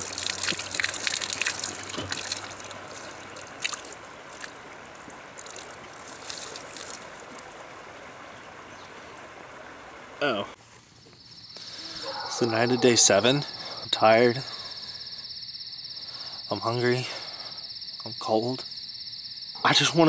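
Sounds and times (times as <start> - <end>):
stream trickling: 0.0 - 10.6
water splashing: 0.0 - 10.6.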